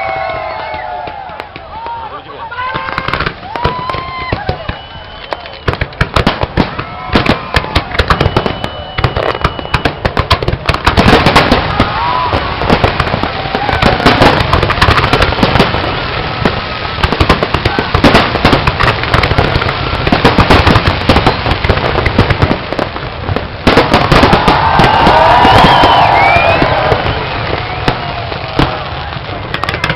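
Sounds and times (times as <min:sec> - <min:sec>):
voices of onlookers: 0:00.0 - 0:09.1, 0:24.1 - 0:29.9
fireworks bangs and crackling: 0:00.0 - 0:29.9.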